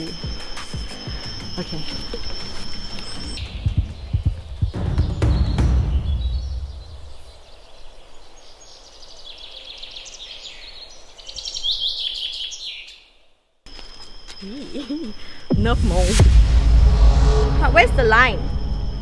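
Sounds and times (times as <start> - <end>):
birds chirping: 0.0 - 15.5
low rumble: 3.4 - 7.3, 15.5 - 19.0.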